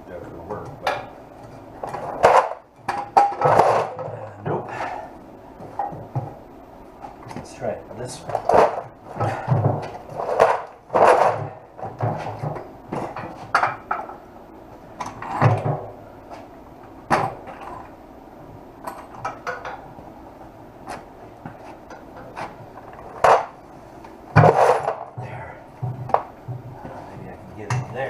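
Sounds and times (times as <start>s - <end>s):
heavy metal parts clunking: 1.8s - 5.1s, 8.2s - 14.2s.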